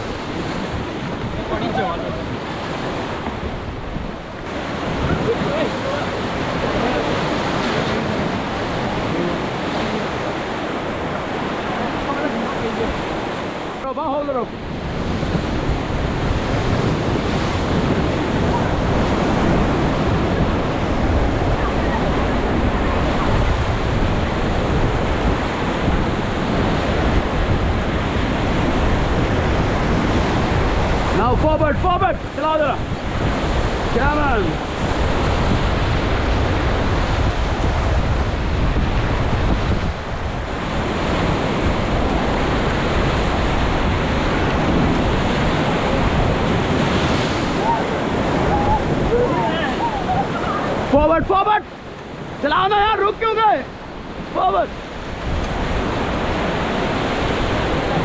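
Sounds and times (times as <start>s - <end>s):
rushing whitewater: 0.0s - 58.0s
wind buffeting microphone: 0.0s - 58.0s.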